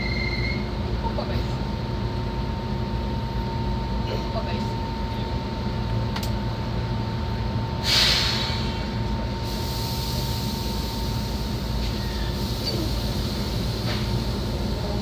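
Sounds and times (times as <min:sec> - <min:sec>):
electric train hum and whine: 0:00.0 - 0:15.0
air hiss: 0:07.8 - 0:14.7.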